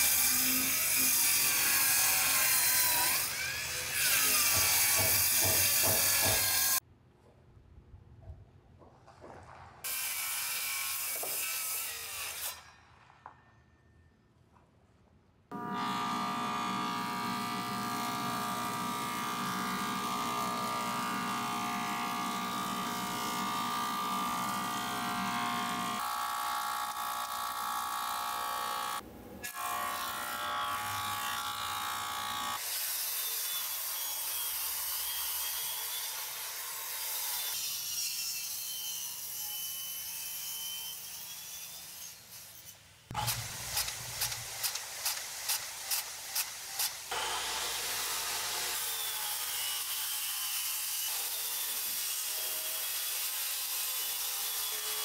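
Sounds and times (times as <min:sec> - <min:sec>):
circular saw cutting wood: 0:00.0 - 0:06.8, 0:15.5 - 0:55.0
thickness planer motor hum: 0:15.5 - 0:32.6.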